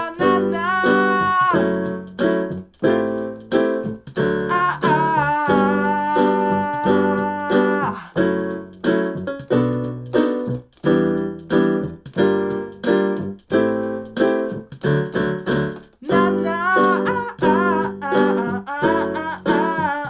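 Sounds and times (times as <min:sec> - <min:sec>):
keyboard playing piano chords: 0:00.0 - 0:20.0.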